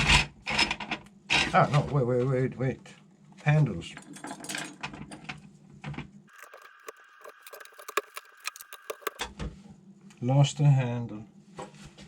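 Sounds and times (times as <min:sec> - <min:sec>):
plastic parts clicking and rattling: 0:04.0 - 0:09.3.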